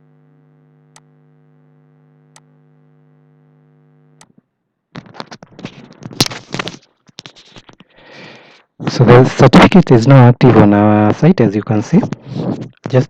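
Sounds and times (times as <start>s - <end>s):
electrical hum: 0.0s - 9.5s.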